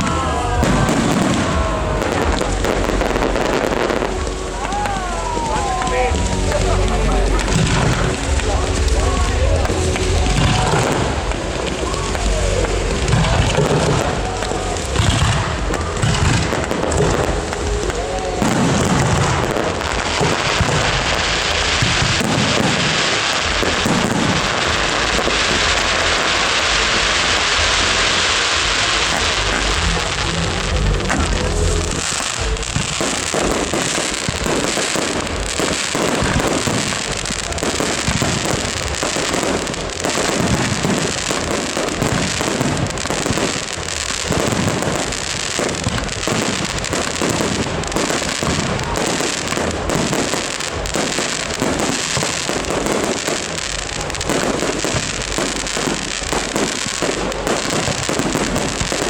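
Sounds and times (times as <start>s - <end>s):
fireworks bangs and pops: 0.0s - 59.0s
fireworks crackling: 0.0s - 59.0s.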